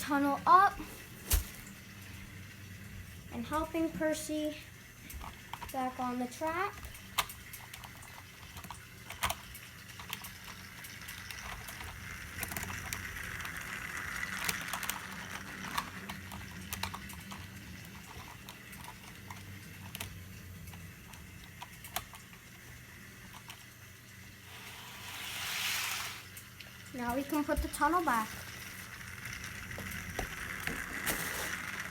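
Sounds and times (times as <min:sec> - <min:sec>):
model train motor hum: 0:01.9 - 0:31.9
wheels clicking over rail joints: 0:05.2 - 0:22.5, 0:26.2 - 0:31.9.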